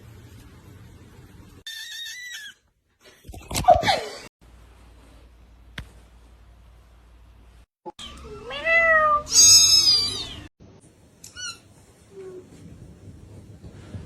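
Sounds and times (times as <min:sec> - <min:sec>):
kitten meowing: 0:08.4 - 0:10.5.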